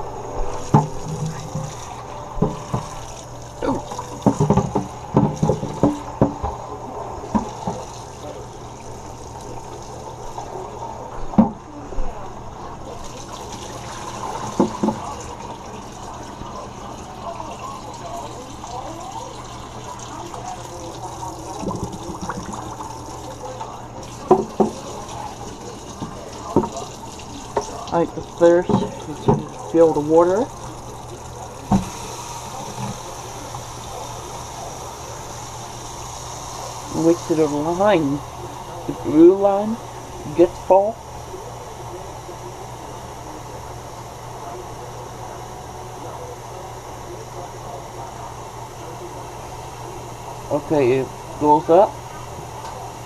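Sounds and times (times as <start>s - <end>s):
water splashing and sloshing: 0.0s - 10.7s
tap running: 0.0s - 40.9s
tank knocking against sink: 0.4s - 6.6s, 7.3s - 7.9s, 11.3s - 11.6s, 14.2s - 15.2s, 21.6s - 22.9s, 24.2s - 26.9s, 27.5s - 30.0s, 31.7s - 32.0s.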